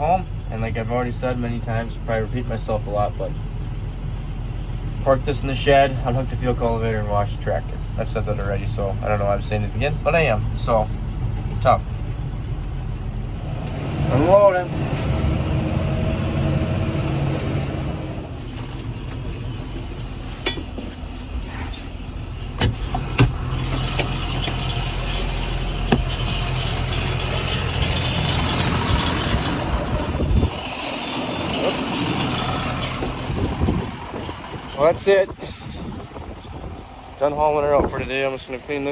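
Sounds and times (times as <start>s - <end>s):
tractor engine droning: 0.0s - 38.9s
machinery knocking and clanking: 7.6s - 35.0s.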